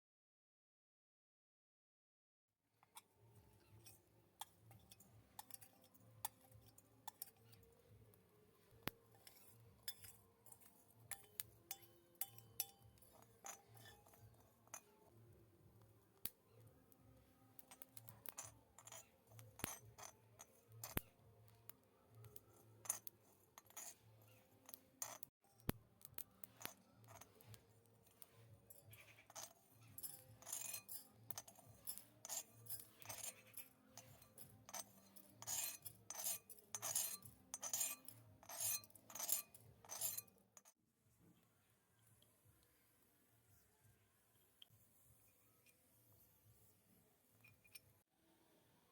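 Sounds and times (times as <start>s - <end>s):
miniature utensils clicking and tapping: 2.8s - 40.8s
faint background music: 2.8s - 48.9s.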